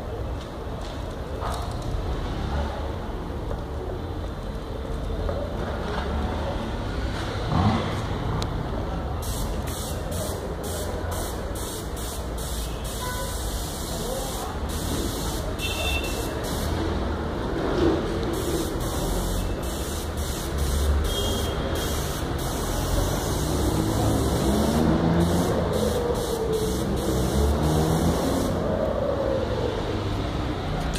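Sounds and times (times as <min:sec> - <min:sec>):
spray gun hissing in bursts: 0:09.2 - 0:16.8, 0:18.3 - 0:28.6.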